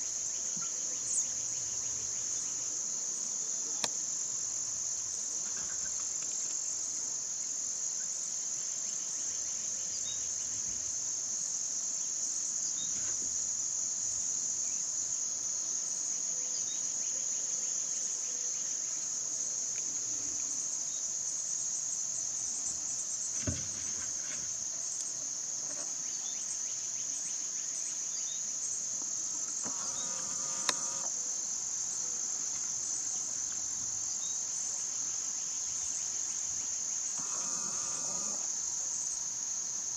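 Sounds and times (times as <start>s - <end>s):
insects trilling: 0.0s - 39.9s
sharp clicks: 29.5s - 31.1s.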